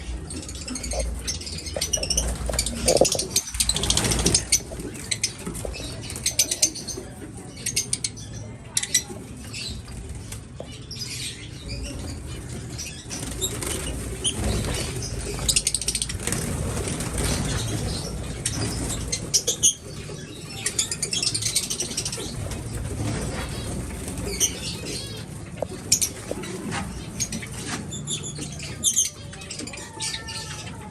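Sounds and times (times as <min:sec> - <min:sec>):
small birds chirping: 0:00.0 - 0:30.9
wing flutters: 0:00.3 - 0:06.8, 0:11.8 - 0:28.8.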